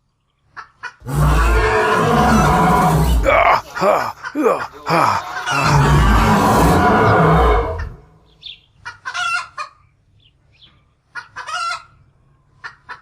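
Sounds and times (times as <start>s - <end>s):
chickens clucking: 0.4s - 1.1s, 3.4s - 5.8s, 8.6s - 10.0s, 10.6s - 13.0s
loud noise: 1.0s - 8.1s.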